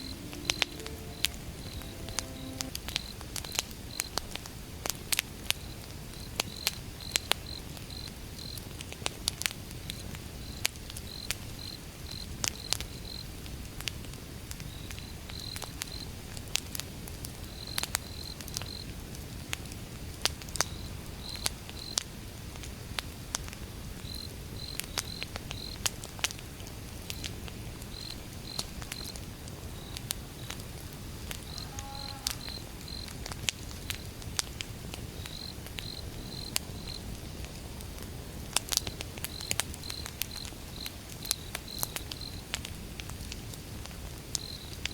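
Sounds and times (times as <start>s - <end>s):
cricket chirping: 31.4s - 33.1s
wood fire crackling and popping: 36.5s - 44.9s.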